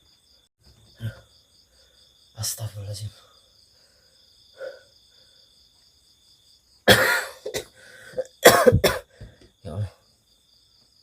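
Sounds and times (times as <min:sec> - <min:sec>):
crickets chirping: 0:00.0 - 0:11.0
man coughing: 0:06.8 - 0:09.3.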